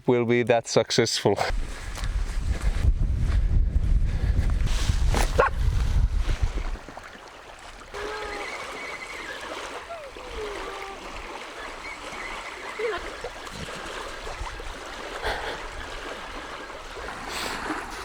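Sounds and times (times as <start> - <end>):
wind rumble on microphone: 1.5 - 7.0, 13.4 - 18.0.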